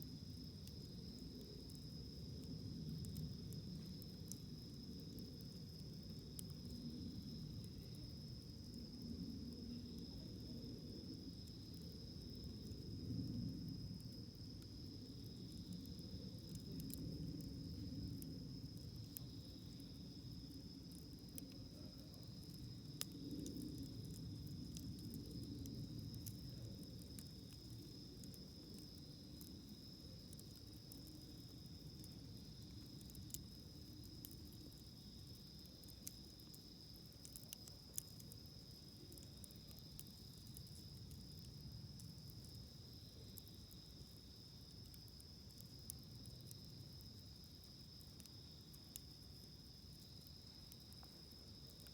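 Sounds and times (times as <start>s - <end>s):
campfire crackling: 0.0s - 51.9s.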